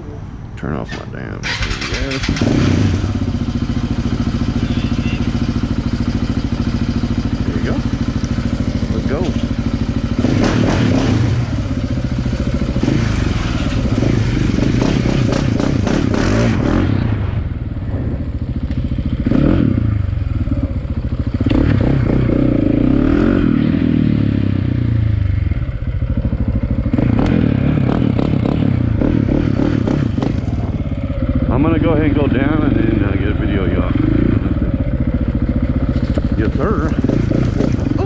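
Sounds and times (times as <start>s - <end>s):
dirt bike engine: 0.6s - 38.0s.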